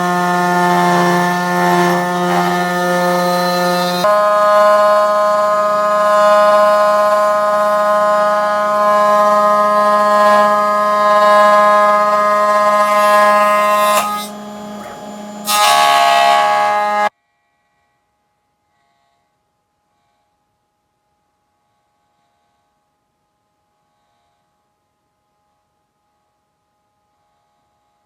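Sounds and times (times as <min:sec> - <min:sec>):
cnc router whining: 0:00.0 - 0:17.1.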